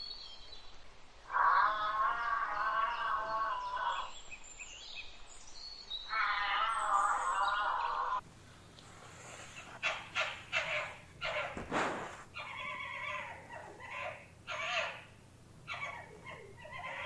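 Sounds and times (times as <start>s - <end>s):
fox yipping calls: 6.1s - 8.2s, 9.4s - 17.0s.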